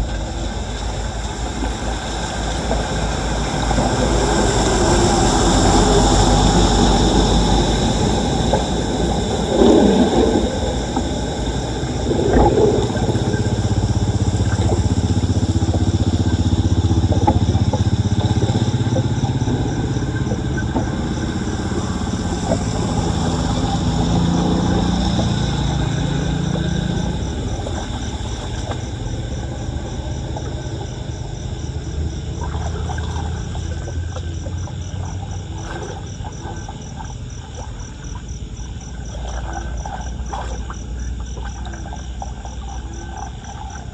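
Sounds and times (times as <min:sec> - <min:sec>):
water rushing down a drain: 0:00.0 - 0:43.9
splashing thumps: 0:07.9 - 0:29.2.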